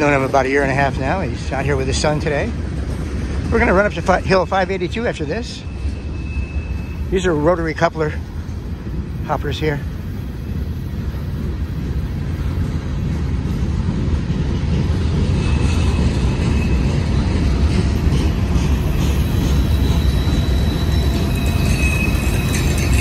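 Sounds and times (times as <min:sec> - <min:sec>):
train wheels rumbling on rail: 0:00.0 - 0:23.0
high wheel squeal: 0:03.6 - 0:08.2, 0:15.2 - 0:23.0.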